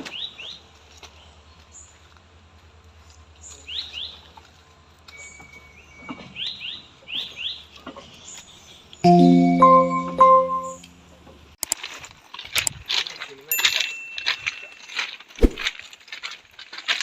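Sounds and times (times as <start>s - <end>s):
loud steady held tones: 9.0s - 11.1s.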